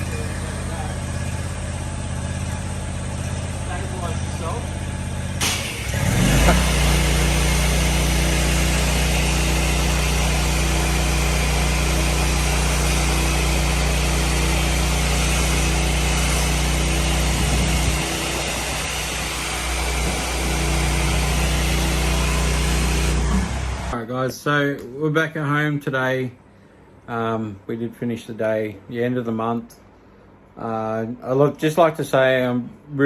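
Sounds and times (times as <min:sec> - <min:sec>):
pressure washer engine running: 0:00.0 - 0:24.0.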